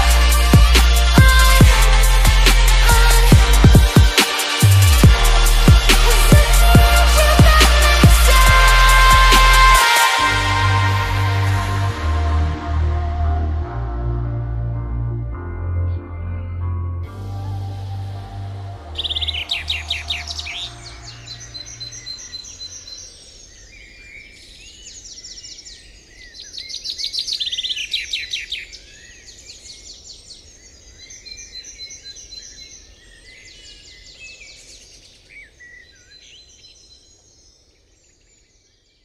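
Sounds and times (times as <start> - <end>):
background music: 0.0 - 22.2
birds singing: 18.9 - 39.0.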